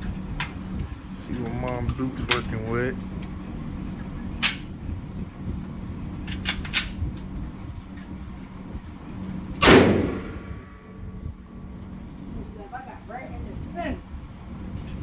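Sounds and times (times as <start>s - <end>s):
faint sharp shot cracks: 9.6s - 10.7s
loud handgun shot with echo: 9.6s - 10.9s.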